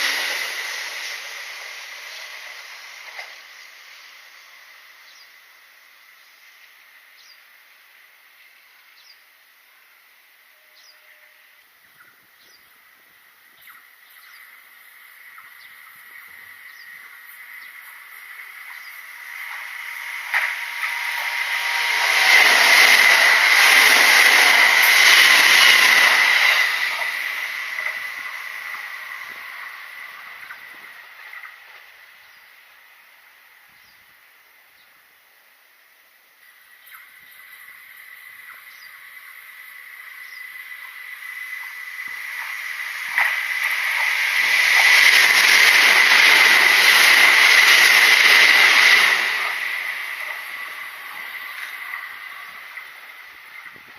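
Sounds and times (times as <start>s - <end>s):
train passing rushing: 0.0s - 6.2s, 13.9s - 33.7s, 36.9s - 53.9s
high-pitched whine: 0.0s - 9.0s, 9.8s - 34.0s, 36.4s - 53.9s.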